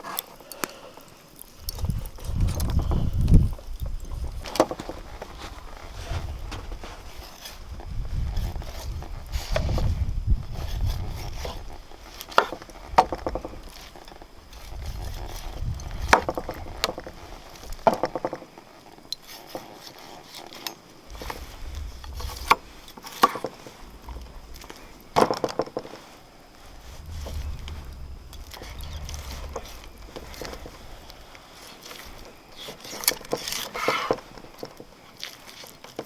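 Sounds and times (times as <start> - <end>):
low rumble: 21.1 - 25.2, 26.0 - 32.5.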